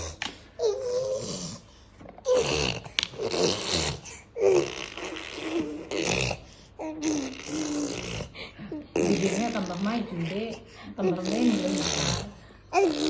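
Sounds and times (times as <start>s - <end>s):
child blowing wet raspberries: 0.0s - 8.4s, 11.3s - 13.0s.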